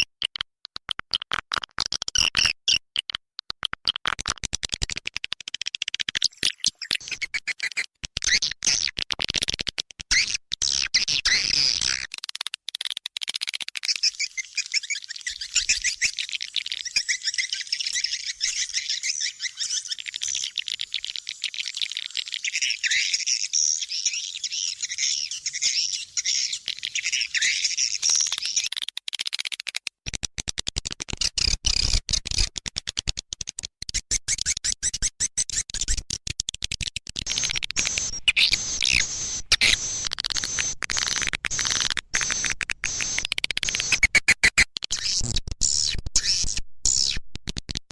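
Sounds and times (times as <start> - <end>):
rough crackling and clicking: 0.0 - 7.0, 8.0 - 10.8, 11.6 - 14.1, 28.0 - 34.0, 35.8 - 45.6, 47.4 - 47.9
swiftlets twittering: 37.3 - 44.1.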